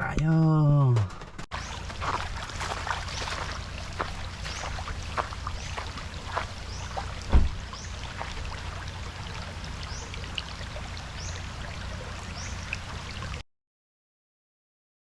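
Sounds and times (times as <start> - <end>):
water trickling: 1.5 - 13.4.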